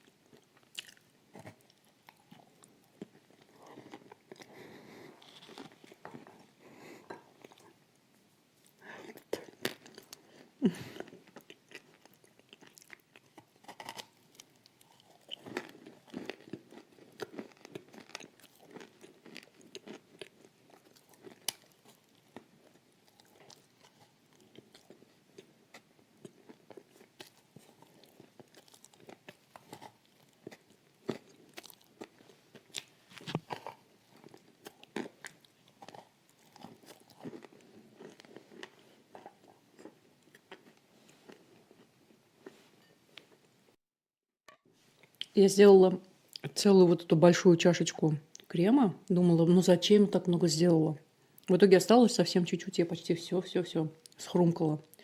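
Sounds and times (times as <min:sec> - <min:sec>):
soft chewing: 0:00.0 - 0:43.8, 0:44.6 - 0:45.4
person crunching food: 0:00.2 - 0:06.5, 0:08.6 - 0:43.4.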